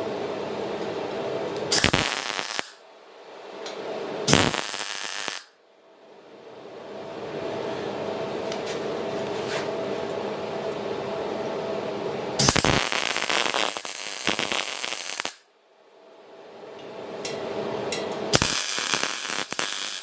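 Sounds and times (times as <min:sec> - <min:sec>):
grinder cutting steel: 0:12.4 - 0:15.3, 0:18.3 - 0:20.0.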